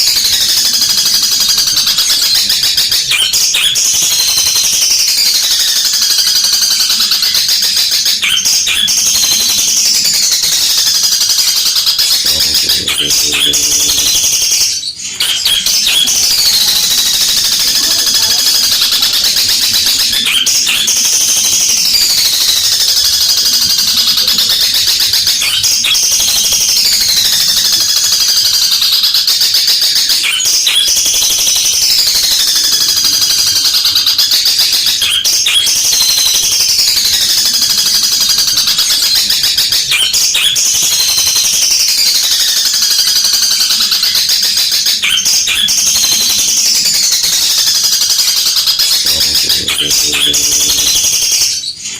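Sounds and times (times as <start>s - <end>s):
bird singing rattling chatter: 0.0s - 51.9s.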